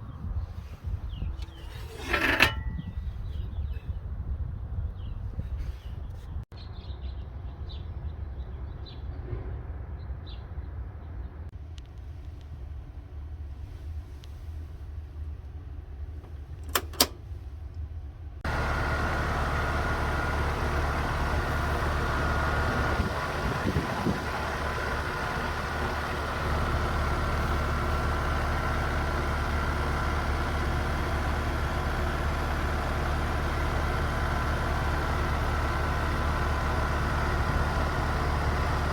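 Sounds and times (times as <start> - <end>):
fan whooshing: 18.5 - 33.3.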